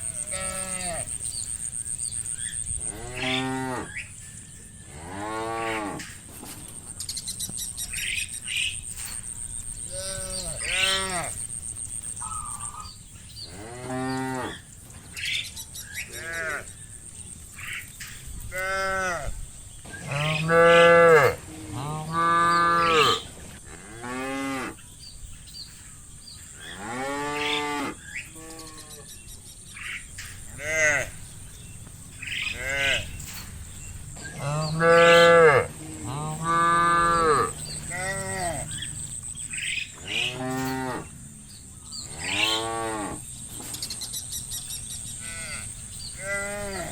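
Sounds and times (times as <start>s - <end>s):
cattle mooing: 0.1s - 1.1s, 2.8s - 4.0s, 9.9s - 11.4s, 30.6s - 31.3s, 32.4s - 39.1s, 40.0s - 41.1s.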